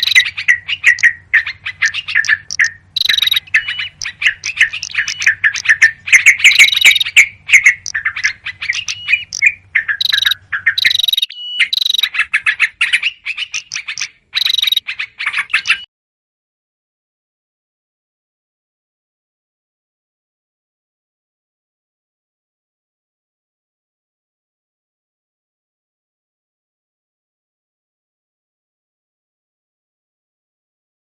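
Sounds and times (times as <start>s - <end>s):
bulbuls chattering: 0.0s - 11.3s, 13.5s - 14.8s
faint low hum: 0.0s - 12.1s.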